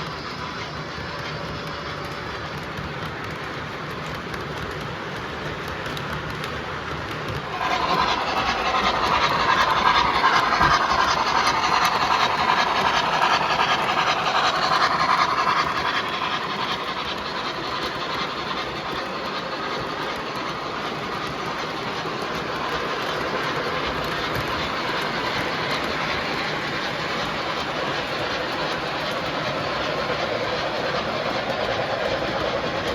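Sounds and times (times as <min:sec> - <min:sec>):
model trains rolling on rails: 0:00.0 - 0:32.9.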